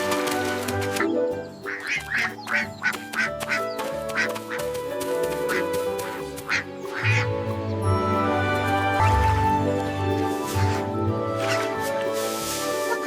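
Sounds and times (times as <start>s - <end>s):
background music: 0.0s - 13.0s
duck quacks: 1.7s - 4.7s, 5.5s - 7.2s.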